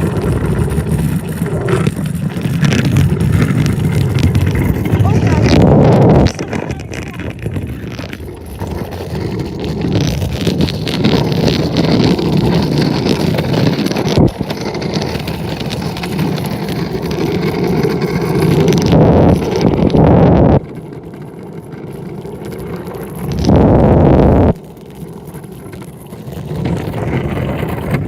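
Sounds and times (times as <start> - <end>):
wind on microphone: 0.0 - 20.8, 23.2 - 24.6
scooter wheels rolling on pavement: 0.0 - 28.0.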